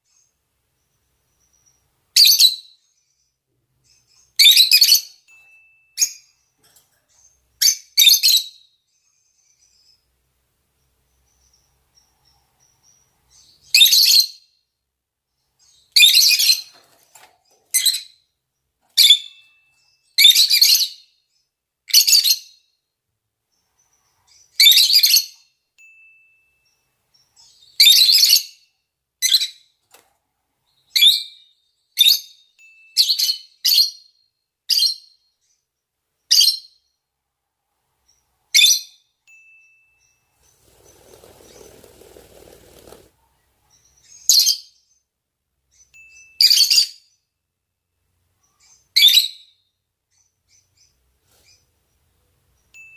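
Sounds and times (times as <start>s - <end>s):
lovebirds high-pitched calls: 0.0s - 10.1s, 10.8s - 14.5s, 15.4s - 18.3s, 18.9s - 22.7s, 23.5s - 25.5s, 26.6s - 29.8s, 39.9s - 45.1s, 45.7s - 47.2s, 48.3s - 52.8s.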